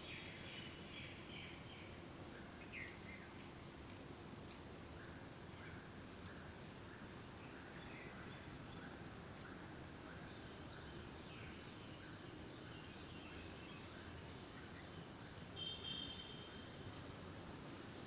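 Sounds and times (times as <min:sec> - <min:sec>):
low background hiss: 0:00.0 - 0:18.0
small birds chirping: 0:04.8 - 0:16.7.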